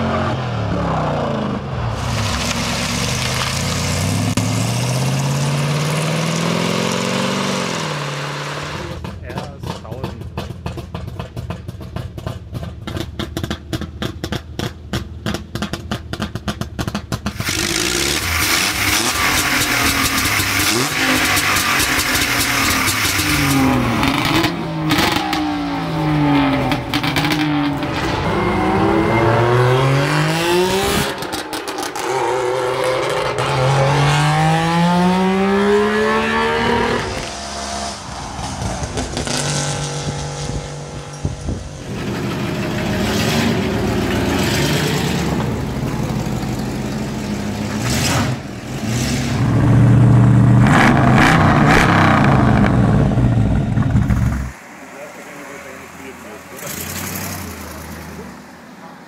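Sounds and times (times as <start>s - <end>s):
two-stroke engine revving: 16.3s - 27.7s, 28.3s - 38.0s.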